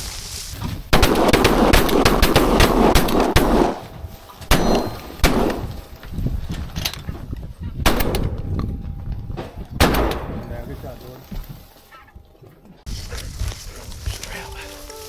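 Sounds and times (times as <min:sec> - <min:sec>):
shotgun shots: 0:00.9 - 0:03.8, 0:04.5 - 0:05.7, 0:07.8 - 0:08.4, 0:09.8 - 0:10.4.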